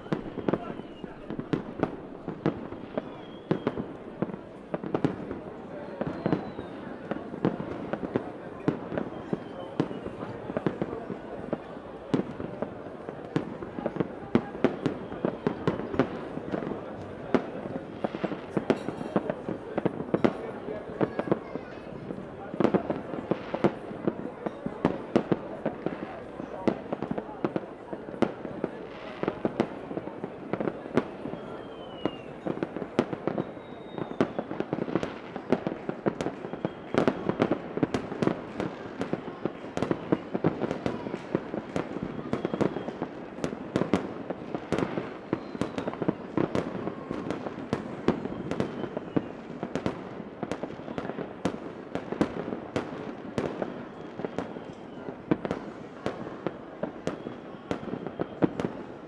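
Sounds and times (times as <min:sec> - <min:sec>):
fireworks bangs and pops: 0:00.0 - 0:59.0
faint falling whistles: 0:02.9 - 0:03.9, 0:06.0 - 0:06.9, 0:31.3 - 0:32.4, 0:33.3 - 0:34.5, 0:45.3 - 0:46.0, 0:53.8 - 0:55.1.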